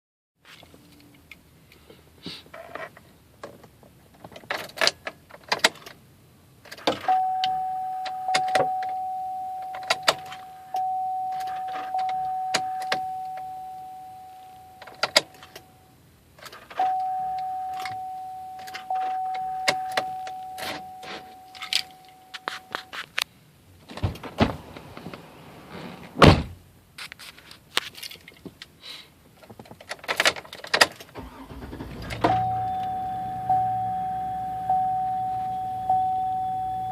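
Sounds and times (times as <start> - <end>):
ignition key and switch clicking: 6.9 - 9.0
dashboard warning chime: 7.0 - 16.0, 16.8 - 22.9, 31.2 - 36.9
heavy thunks: 23.8 - 26.6.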